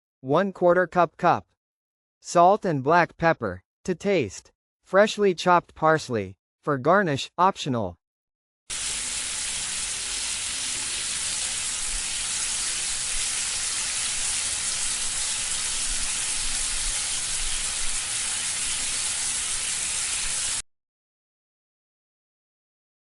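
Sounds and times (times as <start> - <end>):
food sizzling in a pan: 8.7 - 20.6.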